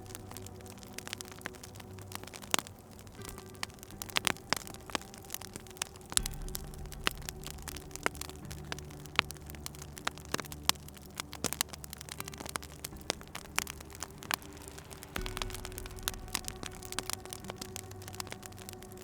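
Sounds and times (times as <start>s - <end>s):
low steady hum: 0.0s - 19.0s
wood fire crackling: 0.0s - 19.0s.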